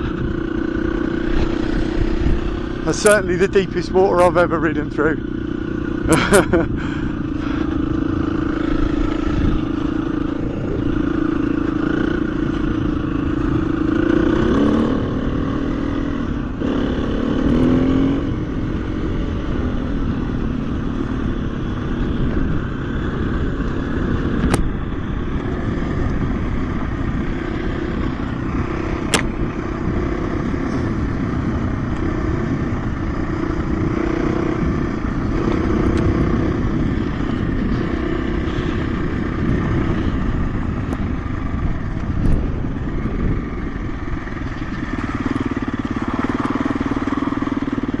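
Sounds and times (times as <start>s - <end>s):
dirt bike engine running: 0.0s - 48.0s
sharp clicks: 29.0s - 29.4s.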